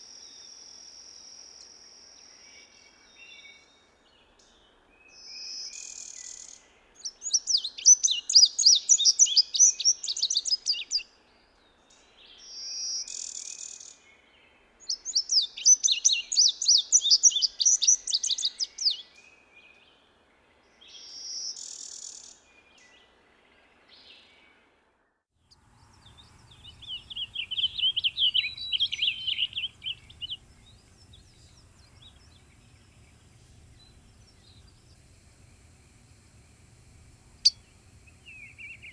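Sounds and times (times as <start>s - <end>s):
single bird notes: 25.6s - 38.9s
songbird warbling: 25.6s - 38.9s.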